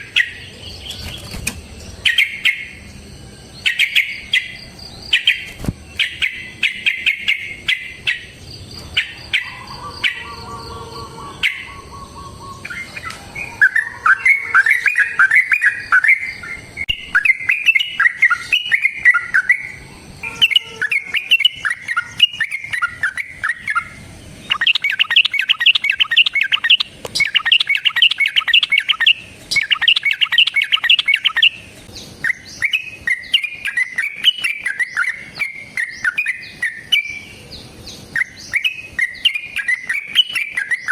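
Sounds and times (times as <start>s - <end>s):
bulbul singing bubbly chattering: 11.3s - 37.2s.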